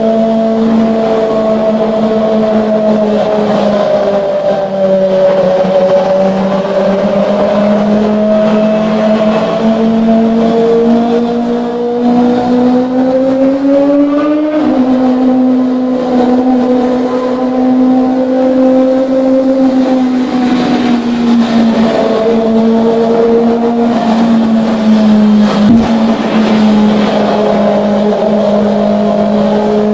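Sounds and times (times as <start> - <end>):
motorcycle engine revving high: 25.5 - 28.9.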